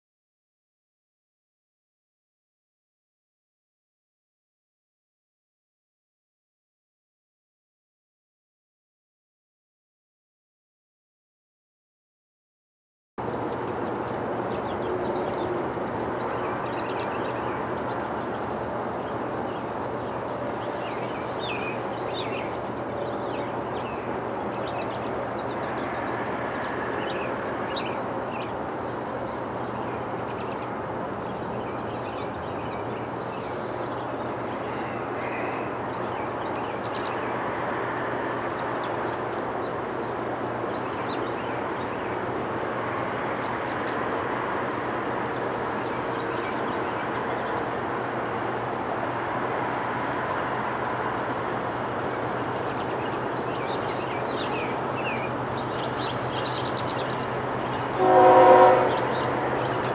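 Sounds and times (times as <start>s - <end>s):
birds chirping: 13.2s - 37.5s, 38.4s - 59.9s
distant diesel locomotive rumble: 13.2s - 59.9s.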